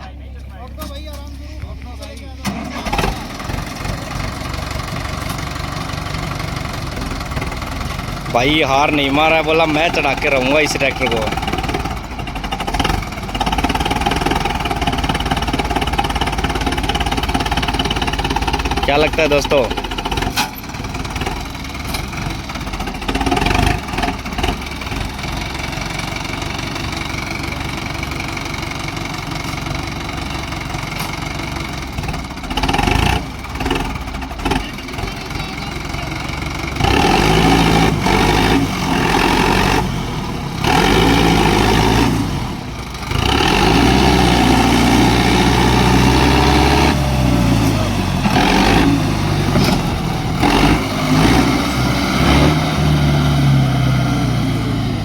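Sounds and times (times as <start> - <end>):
tractor diesel engine straining: 0.0 - 55.0.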